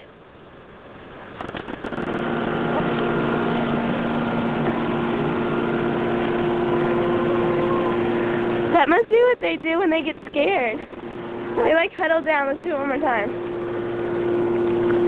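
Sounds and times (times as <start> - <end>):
motor humming: 1.3 - 15.0.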